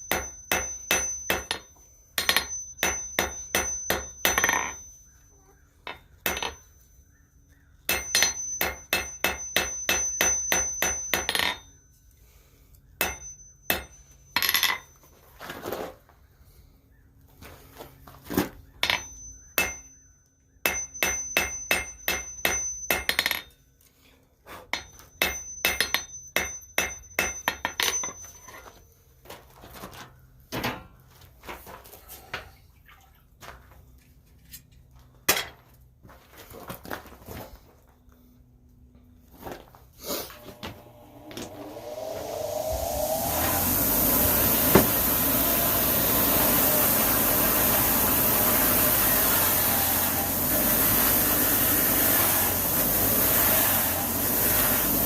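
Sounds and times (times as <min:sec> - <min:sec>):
hammer striking steel on anvil: 0:00.0 - 0:04.9, 0:05.8 - 0:06.7, 0:07.8 - 0:11.8, 0:13.0 - 0:14.9, 0:18.8 - 0:23.6, 0:24.7 - 0:28.6.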